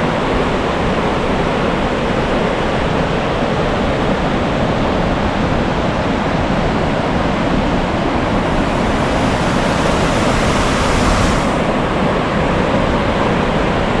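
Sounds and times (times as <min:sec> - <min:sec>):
high hiss: 0:08.2 - 0:12.0
waterfall rushing: 0:08.2 - 0:12.0.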